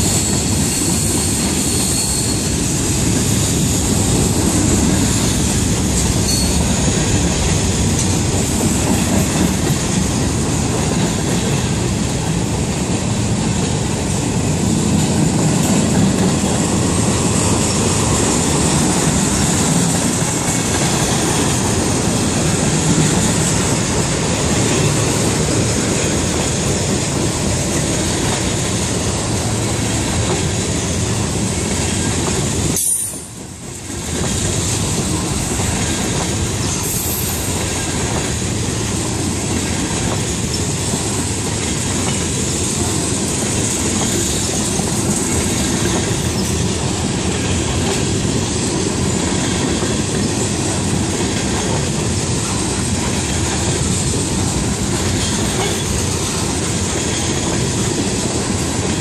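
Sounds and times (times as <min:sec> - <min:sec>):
steel wheels rumbling on rails: 0:00.0 - 0:59.0.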